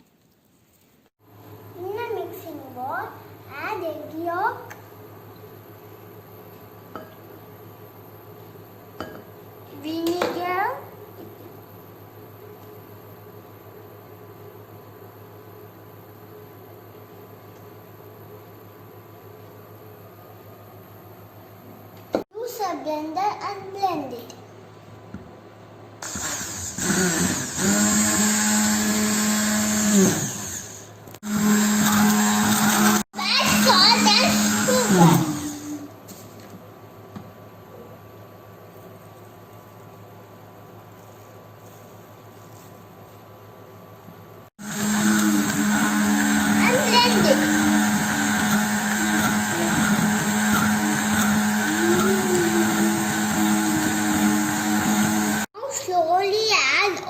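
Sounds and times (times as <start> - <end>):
electric blender running: 26.0 - 35.9, 44.6 - 55.5.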